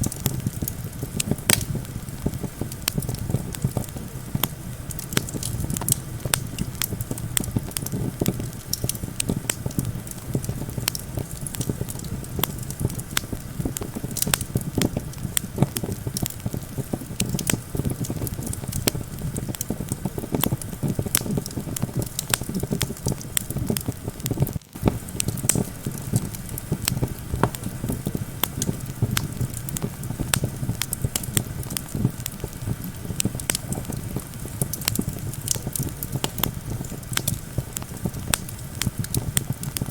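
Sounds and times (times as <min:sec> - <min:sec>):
campfire crackling and popping: 0:00.0 - 0:39.9
low rumble of wind: 0:00.0 - 0:39.9.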